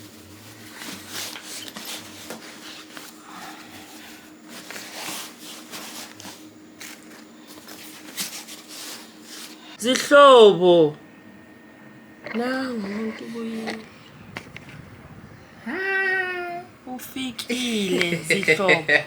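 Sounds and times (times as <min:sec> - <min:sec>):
fabric rustling and scraping: 0:00.0 - 0:09.8
faint steady hum: 0:00.0 - 0:19.0.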